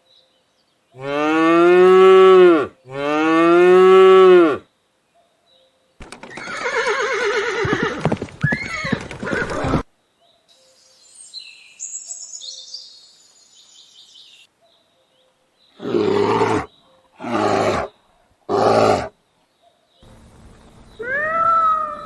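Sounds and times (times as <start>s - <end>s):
birds chirping: 6.0s - 9.8s, 20.0s - 22.0s
big cat roaring: 15.8s - 17.9s, 18.5s - 19.1s.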